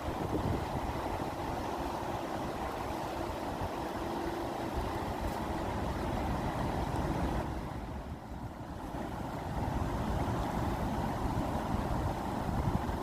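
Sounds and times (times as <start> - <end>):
running water rushing: 0.0 - 13.0.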